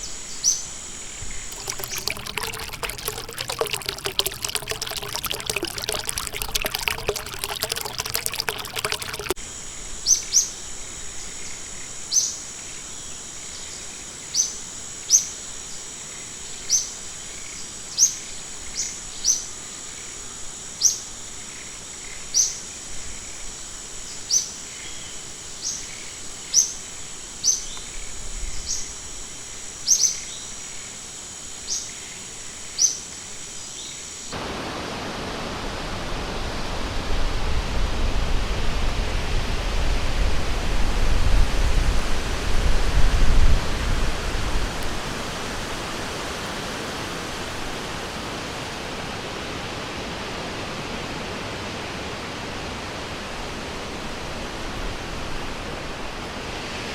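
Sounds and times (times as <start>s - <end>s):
flowing water rushing: 1.5s - 9.4s.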